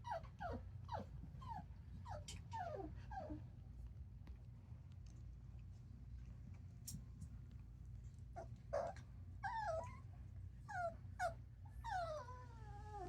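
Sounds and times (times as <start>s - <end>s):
puppy whimpering: 0.0s - 3.4s, 8.7s - 10.1s, 10.7s - 13.0s.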